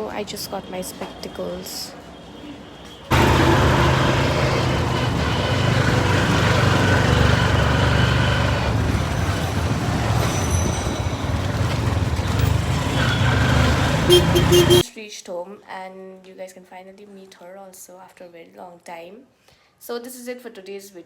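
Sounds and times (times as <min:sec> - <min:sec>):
vehicle engine and road rumble: 0:03.1 - 0:14.8.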